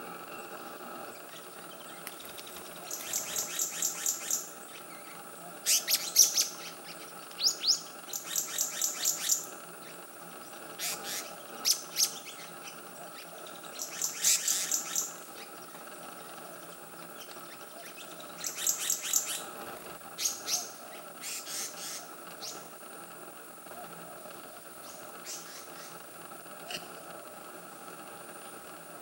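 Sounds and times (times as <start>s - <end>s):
bird chirping: 0.0s - 19.5s, 20.2s - 22.7s, 24.8s - 26.0s
faint background hum: 0.0s - 29.0s.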